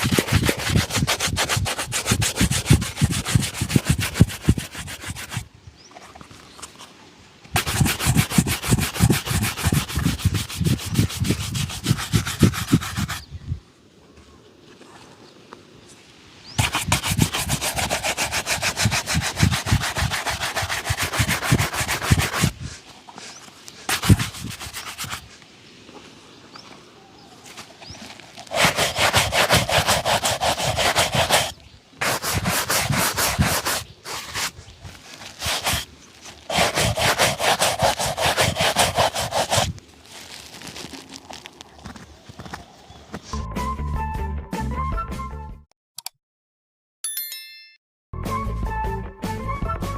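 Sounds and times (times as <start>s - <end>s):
shoe being buffed: 0.0s - 5.4s, 7.6s - 13.3s, 16.6s - 25.4s, 28.4s - 39.8s.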